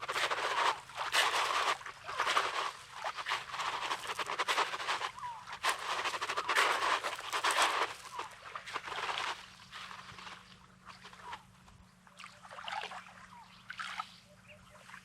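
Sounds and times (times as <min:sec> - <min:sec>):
sea washing over pebbly shore: 0:00.0 - 0:09.4
footsteps on gravelly sand: 0:00.0 - 0:10.5.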